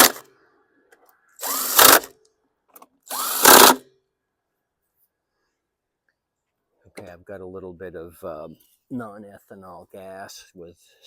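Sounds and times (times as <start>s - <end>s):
power drill whining: 0.0s - 0.2s, 1.4s - 2.1s, 3.1s - 3.8s.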